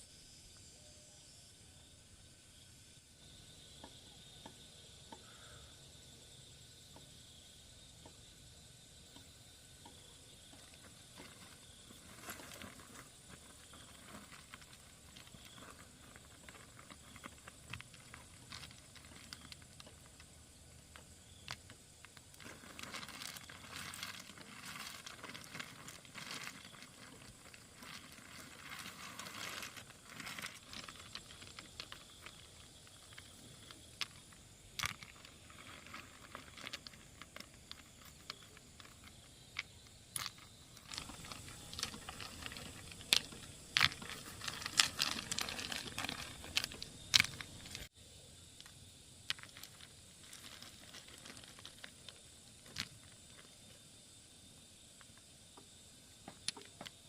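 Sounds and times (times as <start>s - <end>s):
rustling and crinkling: 9.1s - 47.9s, 48.6s - 53.8s.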